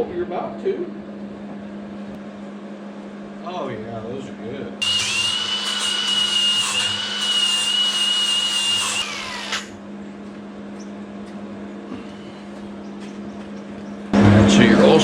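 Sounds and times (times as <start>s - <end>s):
angle grinder grinding steel: 4.8s - 9.7s
steady low hum: 9.1s - 15.0s.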